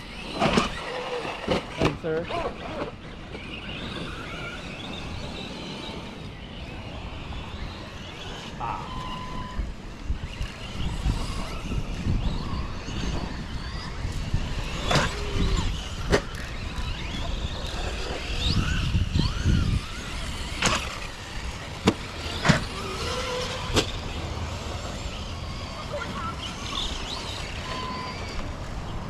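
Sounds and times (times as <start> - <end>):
electric toy truck motors whining: 0.0 - 29.0
tyres rumbling on track: 0.0 - 29.0
trucks landing with sharp knocks: 21.8 - 22.8.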